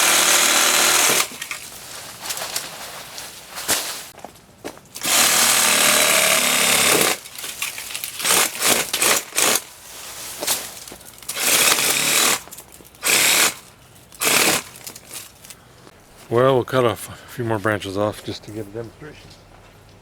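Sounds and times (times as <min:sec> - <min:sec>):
reciprocating saw cutting branches: 0:00.0 - 0:02.7, 0:05.0 - 0:15.4.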